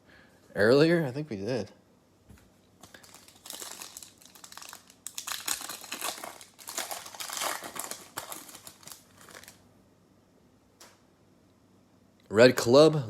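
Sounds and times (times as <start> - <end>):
card packaging crinkling: 2.8 - 9.6.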